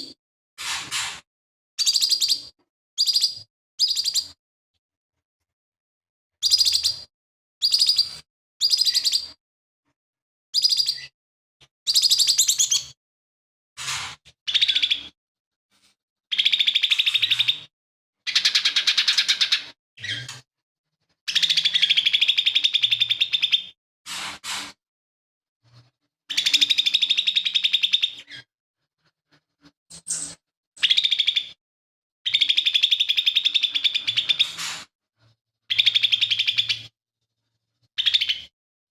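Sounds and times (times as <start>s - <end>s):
bird singing rapid trills: 1.8s - 2.4s, 3.0s - 4.3s.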